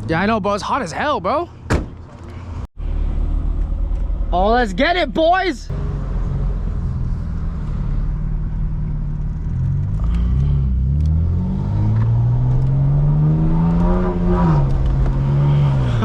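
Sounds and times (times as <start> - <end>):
car engine revving: 5.7 - 16.0.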